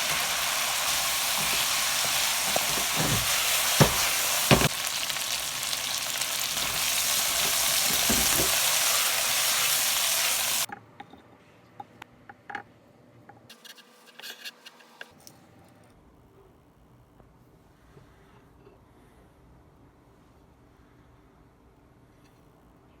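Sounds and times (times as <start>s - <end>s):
food sizzling in a pan: 0.0s - 10.7s.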